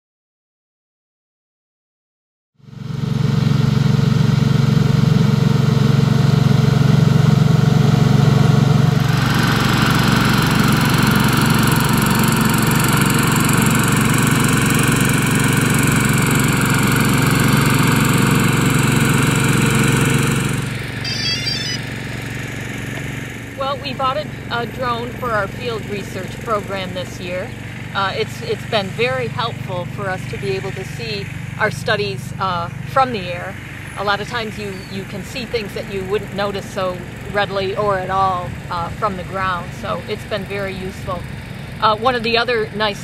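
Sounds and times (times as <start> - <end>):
drone rotors whirring: 18.3 - 31.3
high-pitched whine: 21.0 - 22.1.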